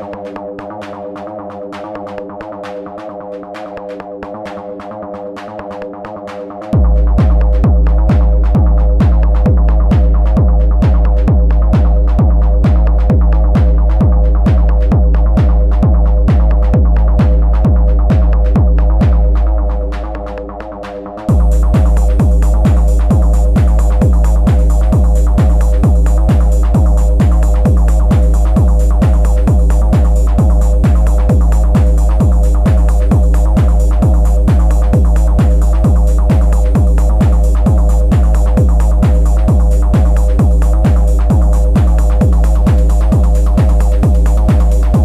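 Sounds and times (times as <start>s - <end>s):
four-on-the-floor kick drum: 6.7s - 20.6s, 21.2s - 45.0s
bass swell: 21.3s - 45.0s.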